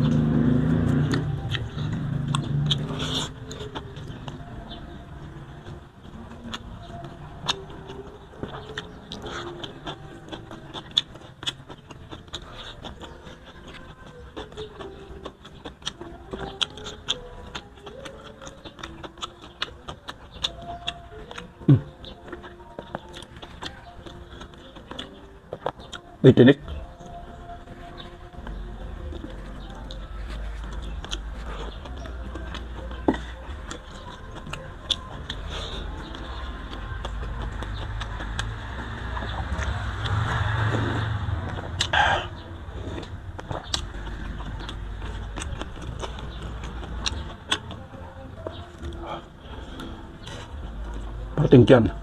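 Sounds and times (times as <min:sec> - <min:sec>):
chewing and lip-smacking: 0:00.0 - 0:52.0.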